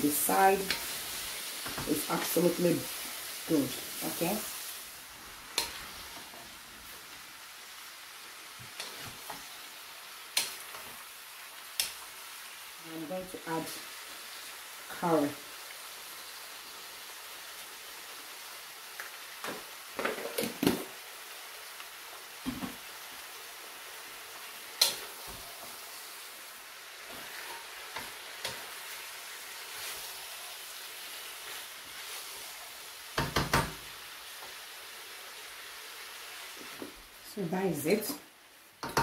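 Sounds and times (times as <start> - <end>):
vegetables sizzling in a wok: 0.0 - 39.0
wooden spatula knocking on pan: 33.2 - 33.8, 38.8 - 39.0.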